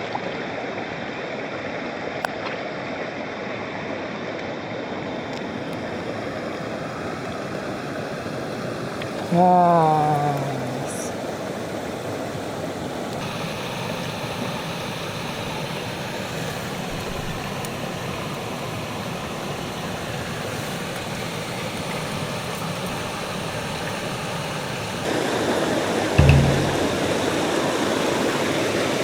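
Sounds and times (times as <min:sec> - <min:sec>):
stream water rushing: 0:25.1 - 0:28.2.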